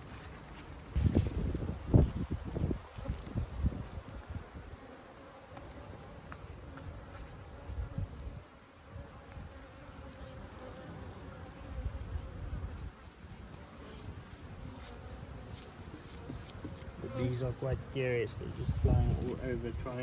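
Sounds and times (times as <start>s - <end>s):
honeybees buzzing: 0.0s - 20.0s
low rumbling on microphone: 18.2s - 20.0s.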